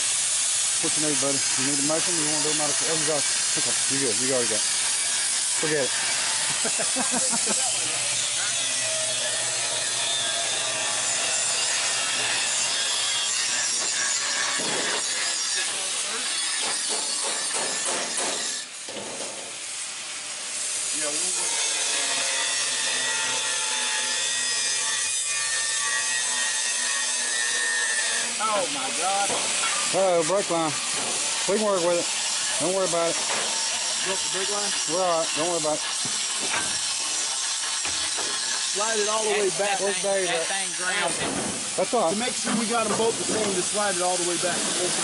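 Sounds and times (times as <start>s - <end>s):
power tool cutting metal: 0.0s - 45.0s.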